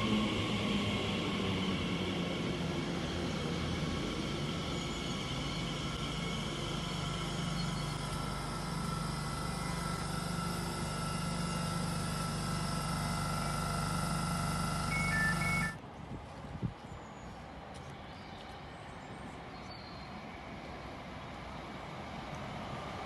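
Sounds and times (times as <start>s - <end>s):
electric train humming: 0.0s - 15.8s
thin whining tones: 3.0s - 15.8s
short high beeps: 14.9s - 15.8s.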